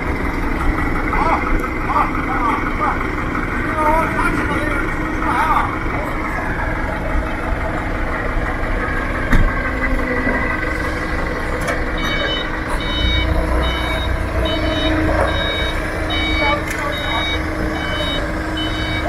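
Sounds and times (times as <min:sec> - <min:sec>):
engine knock: 0:00.0 - 0:19.0
heavy vehicle engine rumbling: 0:00.0 - 0:19.0
reversing alarm beeping: 0:05.8 - 0:19.0.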